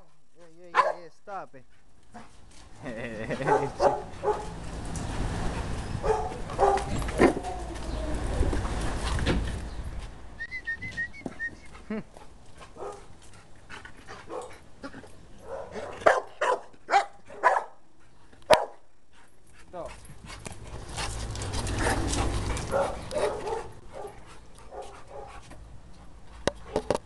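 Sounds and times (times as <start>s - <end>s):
dog barking: 0.7s - 1.1s, 3.4s - 4.6s, 6.0s - 6.9s, 12.8s - 13.0s, 15.4s - 17.8s, 18.5s - 18.8s, 22.7s - 25.4s.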